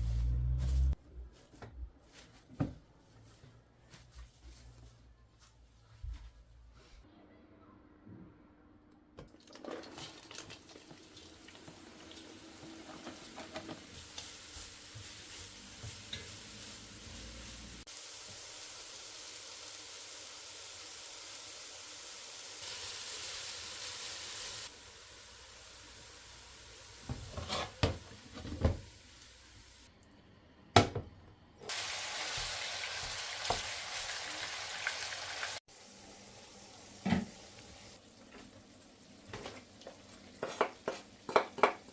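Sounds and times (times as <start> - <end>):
food sizzling in frying pan: 10.8 - 29.9, 31.7 - 41.3.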